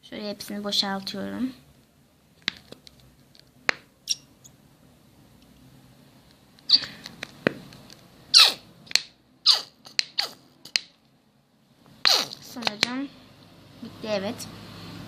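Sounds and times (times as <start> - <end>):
squeaky glue bottle sputters: 8.3 - 8.6, 9.4 - 10.4, 12.0 - 12.5.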